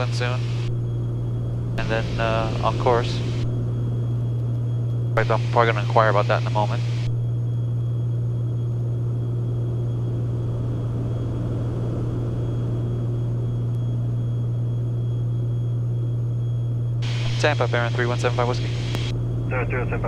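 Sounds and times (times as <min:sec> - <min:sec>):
airplane engines droning in cabin: 0:00.0 - 0:20.0.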